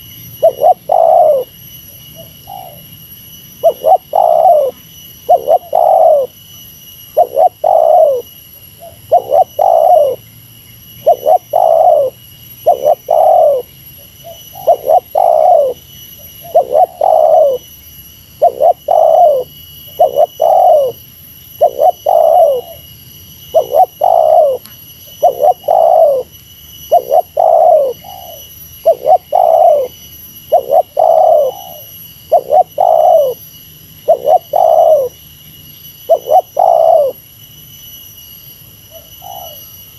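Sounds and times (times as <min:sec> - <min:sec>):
dove cooing: 0:00.0 - 0:02.9, 0:03.6 - 0:06.4, 0:07.1 - 0:10.2, 0:11.0 - 0:17.6, 0:18.4 - 0:21.0, 0:21.6 - 0:22.9, 0:23.5 - 0:26.3, 0:26.9 - 0:33.4, 0:34.0 - 0:35.2, 0:36.1 - 0:37.2, 0:38.9 - 0:39.7.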